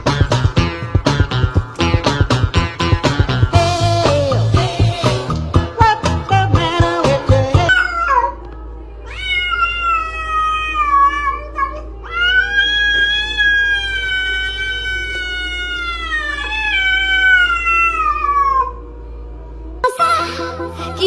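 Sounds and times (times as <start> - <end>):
steady low hum: 0.0 - 7.9
cat yowling: 7.7 - 8.4, 9.0 - 18.8.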